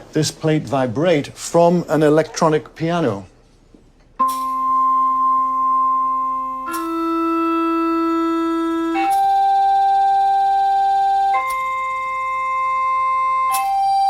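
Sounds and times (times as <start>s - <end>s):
electronic piano held notes: 4.2s - 14.0s.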